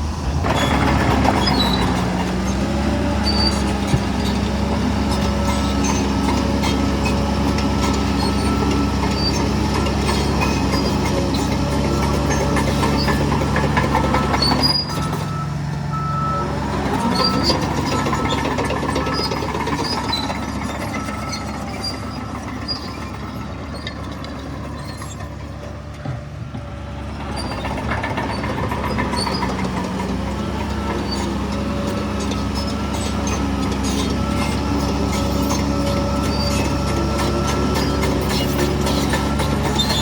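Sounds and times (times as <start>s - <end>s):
diesel engine under load: 0.0s - 40.0s
reversing alarm beeping: 11.9s - 23.6s.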